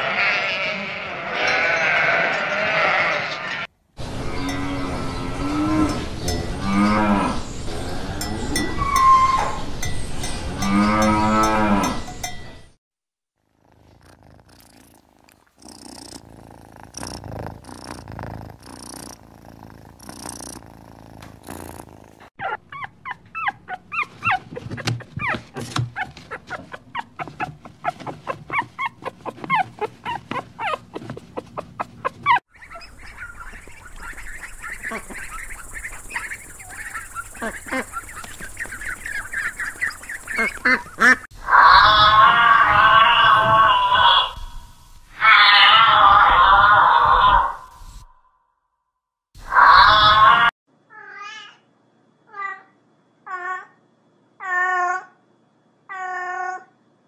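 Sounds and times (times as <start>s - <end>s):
cow mooing: 0.0s - 8.3s, 10.6s - 12.0s.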